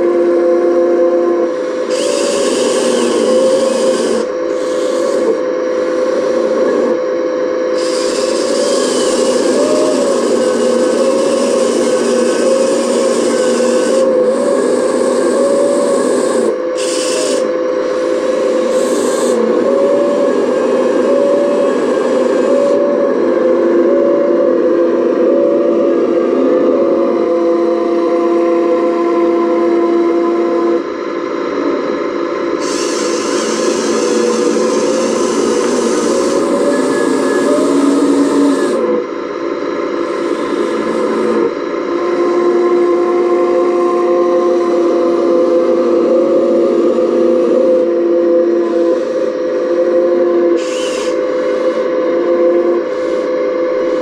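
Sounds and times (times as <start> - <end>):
model excavator motor and pump whine: 0.0 - 54.0
hydraulic hiss: 7.7 - 19.5, 32.6 - 38.8, 50.6 - 51.9.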